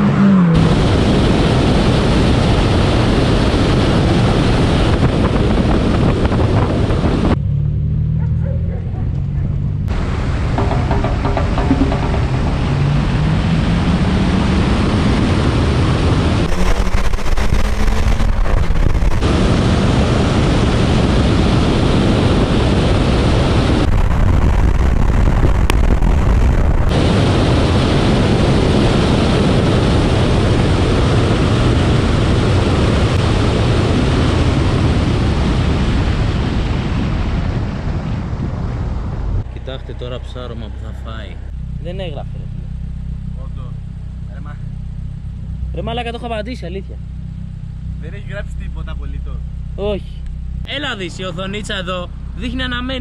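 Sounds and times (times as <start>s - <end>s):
wind rush on microphone: 0.0s - 7.4s, 9.0s - 39.7s
car engine at full throttle: 0.0s - 53.0s.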